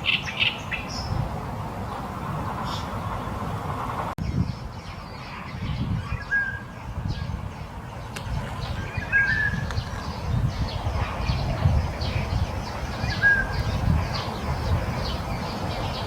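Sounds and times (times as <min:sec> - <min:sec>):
faint high bird chirps: 0:04.2 - 0:16.0
bird whistling: 0:06.0 - 0:06.7, 0:08.8 - 0:09.9, 0:13.0 - 0:13.7.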